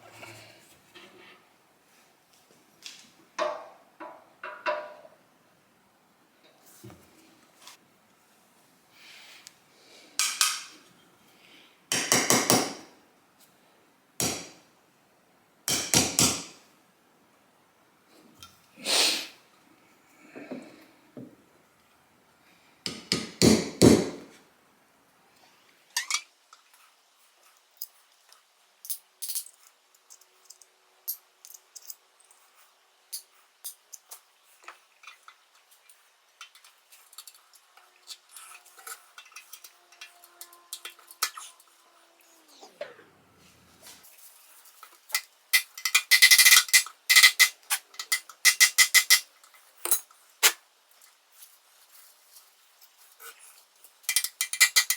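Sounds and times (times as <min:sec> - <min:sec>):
metal parts clinking on workbench: 0:45.6 - 0:49.3, 0:54.1 - 0:54.9.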